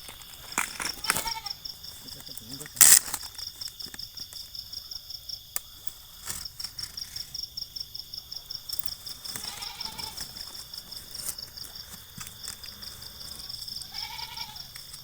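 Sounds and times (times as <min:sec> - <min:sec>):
insect chirping: 0:00.0 - 0:15.0
sharp clicks: 0:02.3 - 0:03.7.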